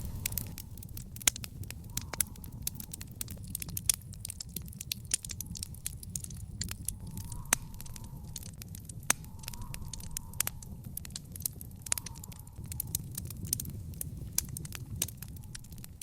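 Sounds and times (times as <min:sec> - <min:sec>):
fire popping and snapping: 0:00.0 - 0:16.0
low rumble of flames: 0:00.0 - 0:16.0
wood fire crackling: 0:00.0 - 0:16.0.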